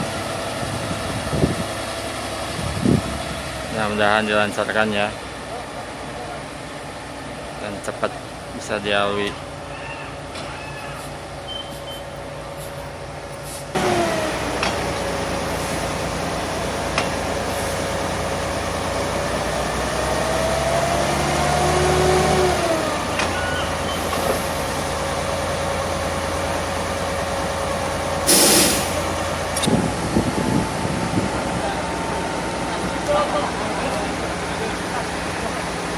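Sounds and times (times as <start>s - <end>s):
track machine whine: 13.8s - 17.4s
short loud hiss: 28.3s - 29.1s.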